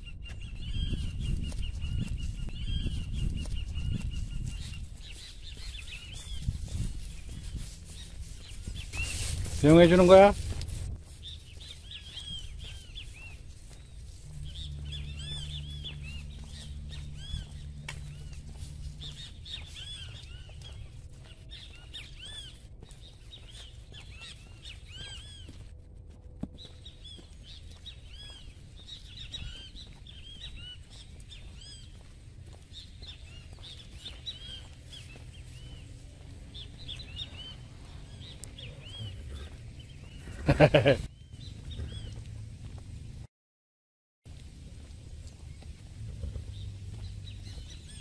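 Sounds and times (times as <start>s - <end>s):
small birds chirping: 0.0s - 25.8s, 26.4s - 43.2s, 44.3s - 48.0s
steady low rumble: 0.0s - 43.3s, 44.3s - 48.0s
low steady hum: 12.2s - 21.6s.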